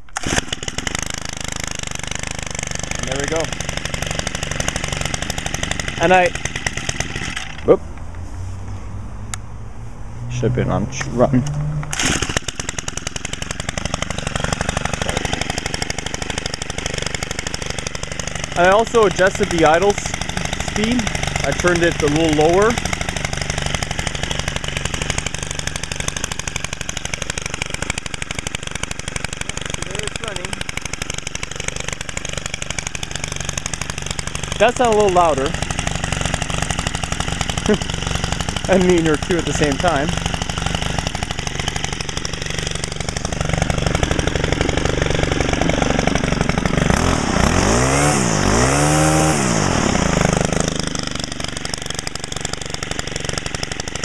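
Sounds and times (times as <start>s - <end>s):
string trimmer engine idling: 0.0s - 8.3s, 10.7s - 54.0s.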